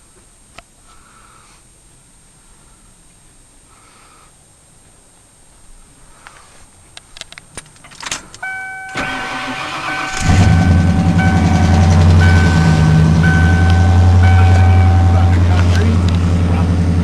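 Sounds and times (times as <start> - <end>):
repeating warning chime: 8.4 - 17.0
truck engine idling: 8.4 - 17.0.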